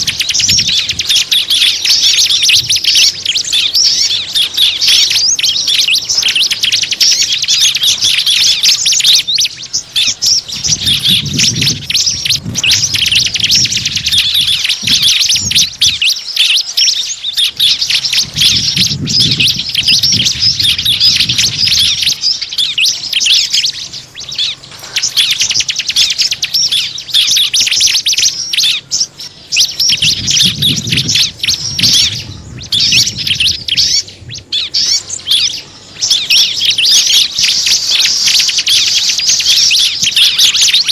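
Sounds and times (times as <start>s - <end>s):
small birds twittering: 0.0s - 40.9s.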